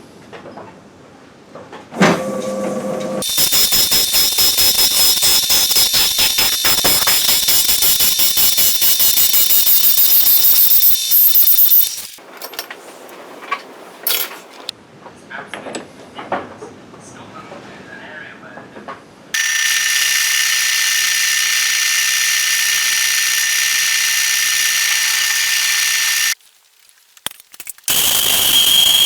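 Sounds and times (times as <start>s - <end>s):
machine hum: 2.0s - 12.2s, 19.4s - 26.4s
power tool high whine: 2.2s - 12.2s, 19.4s - 26.4s, 27.9s - 29.0s.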